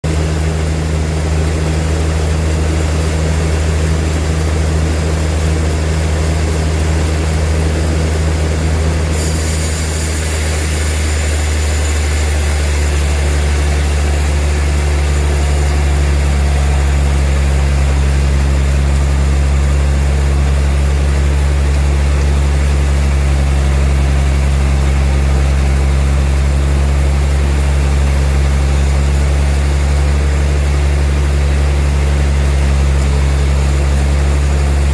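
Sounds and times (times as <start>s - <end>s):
sawmill machinery drone: 0.0s - 34.9s
high hiss: 9.1s - 15.3s.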